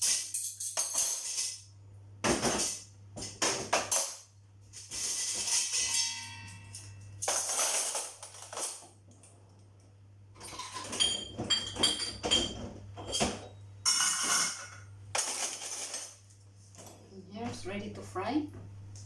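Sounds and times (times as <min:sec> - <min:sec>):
dishes and cutlery clinking: 0:04.8 - 0:09.0, 0:10.4 - 0:16.2.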